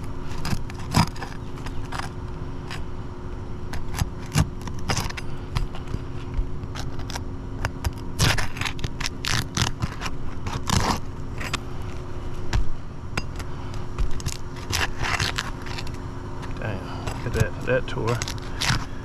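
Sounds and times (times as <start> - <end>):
steady low hum: 0.0 - 19.0
roof shingles tearing: 3.7 - 12.0, 13.7 - 19.0
shingles scraping: 3.7 - 19.0.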